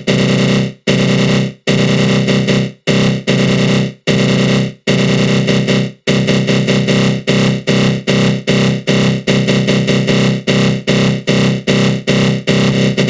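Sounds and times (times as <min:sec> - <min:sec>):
pulsing buzzy synth growl: 0:06.3 - 0:13.0.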